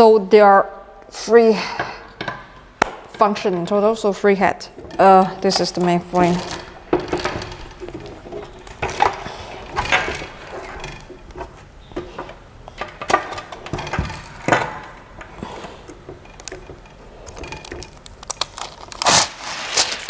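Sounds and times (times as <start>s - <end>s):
knocks and clacks of parts: 1.8s - 18.5s
packaging rustling: 5.5s - 15.6s, 16.3s - 20.0s.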